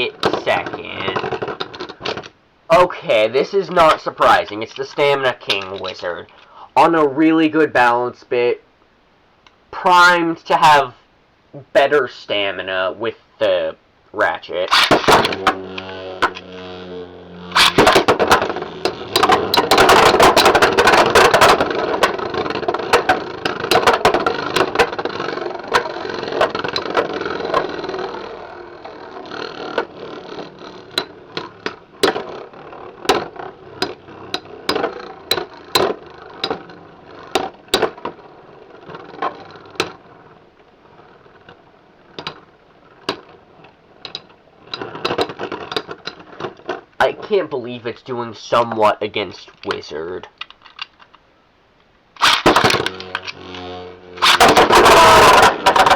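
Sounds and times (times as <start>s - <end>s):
spinning tops whirring and grinding: 14.6s - 46.8s, 52.2s - 55.9s
spinning tops clacking together: 14.7s - 43.4s, 52.2s - 55.9s.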